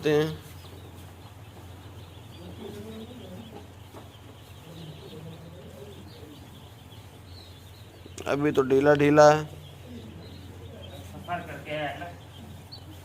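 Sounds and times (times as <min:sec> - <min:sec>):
chicks peeping: 0:00.0 - 0:13.0
steady low hum: 0:00.0 - 0:13.0.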